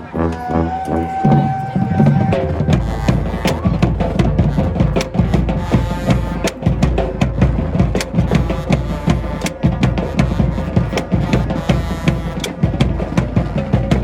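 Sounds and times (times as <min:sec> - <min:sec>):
winds holding long note: 0:00.0 - 0:04.4
bass and snare drums: 0:00.0 - 0:14.0
marching band playing: 0:00.0 - 0:14.0.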